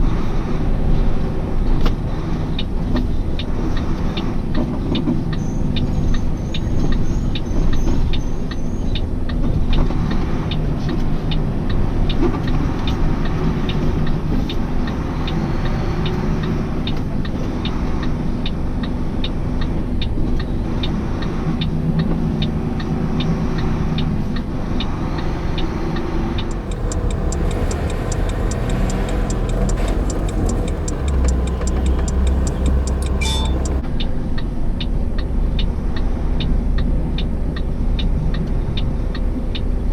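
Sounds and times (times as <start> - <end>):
truck engine running: 26.4 - 33.8
turn signal ticking: 26.4 - 33.8.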